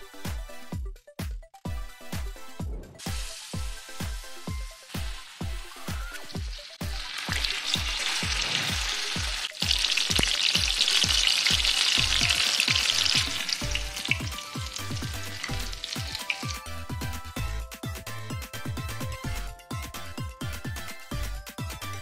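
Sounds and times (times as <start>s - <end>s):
background music with beat: 0.0s - 22.0s
food sizzling in deep fryer: 3.0s - 17.3s.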